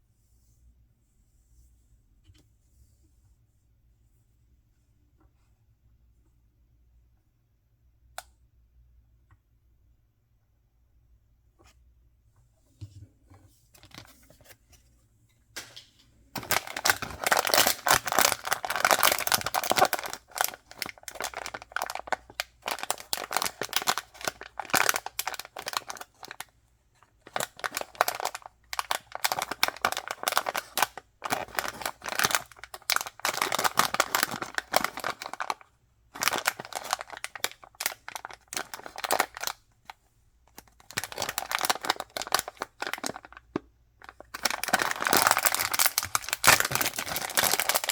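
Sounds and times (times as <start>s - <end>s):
faint handling sounds: 0.0s - 6.5s, 11.4s - 47.9s
packaging crinkling and tearing: 15.6s - 26.5s, 27.2s - 39.6s, 40.5s - 47.9s.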